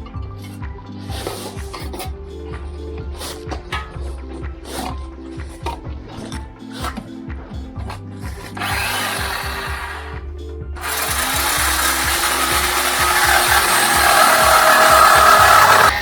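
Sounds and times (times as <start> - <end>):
power saw cutting steel pipe: 8.5 - 10.2, 10.8 - 16.0.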